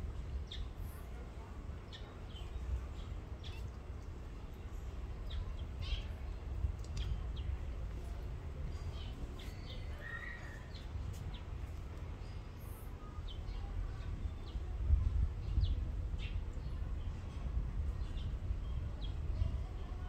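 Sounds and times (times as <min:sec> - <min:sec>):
small birds chirping: 0:01.9 - 0:07.7.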